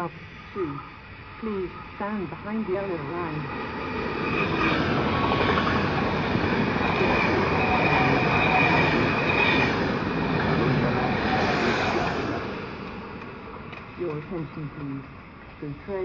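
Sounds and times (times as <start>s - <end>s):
rush of train wheels on rail: 0.0s - 16.0s
thin high whine: 6.7s - 13.3s.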